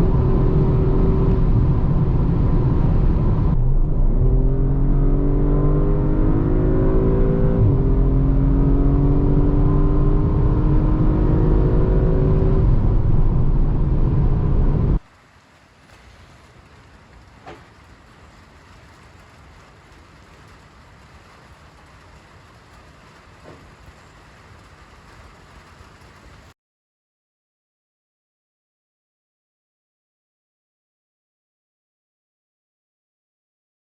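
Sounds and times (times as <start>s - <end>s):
car engine accelerating hard: 0.0s - 15.0s
faint steady hiss: 15.0s - 26.6s.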